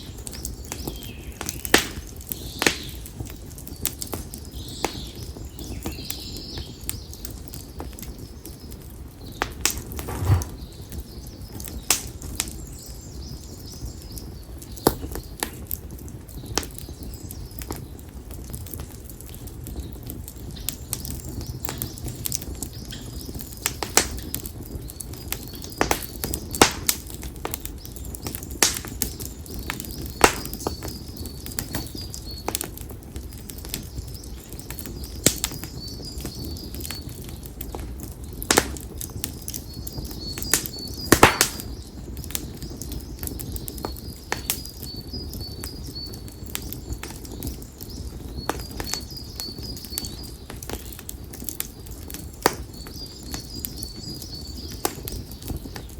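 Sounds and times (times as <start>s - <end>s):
firewood crackling in campfire: 0.0s - 55.9s
low flame rumble: 0.0s - 55.9s
small bird chirping: 8.4s - 11.3s.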